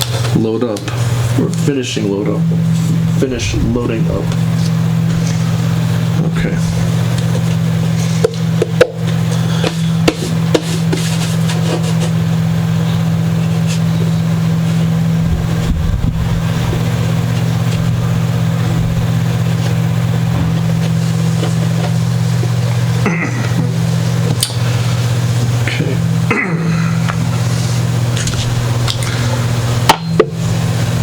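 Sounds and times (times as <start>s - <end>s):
loud low hum: 0.0s - 31.0s
brief low rumble: 15.3s - 16.9s.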